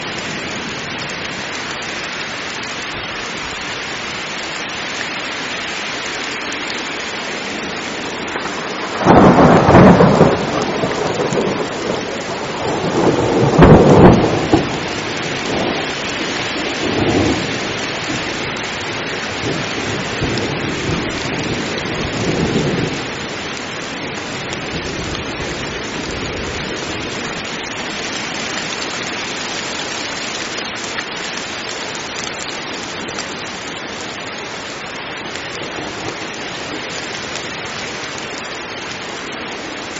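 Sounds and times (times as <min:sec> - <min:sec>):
heavy rain falling: 0:00.0 - 0:39.9
thunderclaps rumbling: 0:07.5 - 0:29.4.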